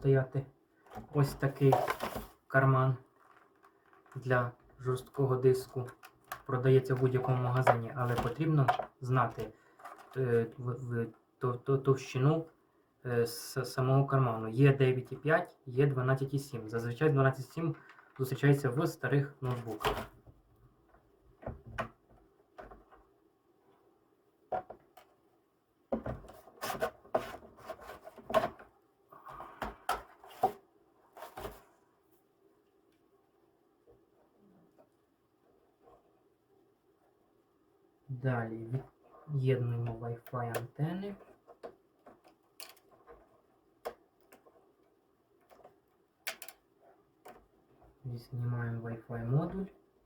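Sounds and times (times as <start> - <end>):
plastic parts scraping: 0.8 - 2.4, 3.0 - 10.3, 17.7 - 18.5, 19.4 - 20.2, 26.0 - 28.7, 29.3 - 31.8, 40.3 - 44.8
plastic parts clicking and knocking: 3.0 - 10.2, 17.8 - 18.4, 19.4 - 23.1, 24.5 - 25.2, 25.9 - 28.7, 29.5 - 30.6, 39.8 - 48.0.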